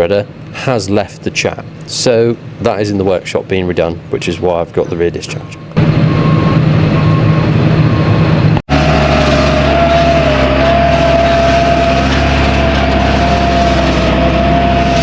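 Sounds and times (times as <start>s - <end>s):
steady whine: 0.0s - 15.0s
tractor engine running: 3.8s - 15.0s.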